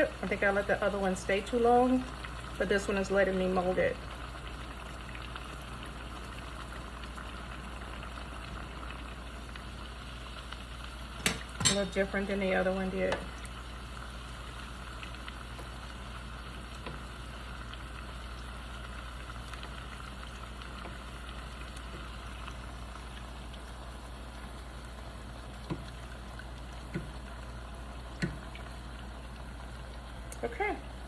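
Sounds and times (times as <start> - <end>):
taco shell sizzling in oil: 0.0 - 31.0.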